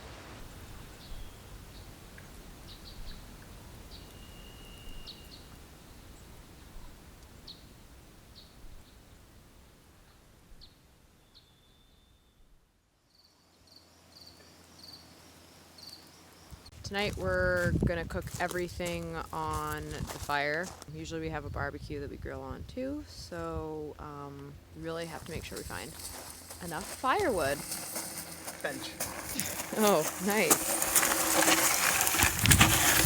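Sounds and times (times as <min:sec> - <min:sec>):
bird chirps: 0:03.9 - 0:05.5.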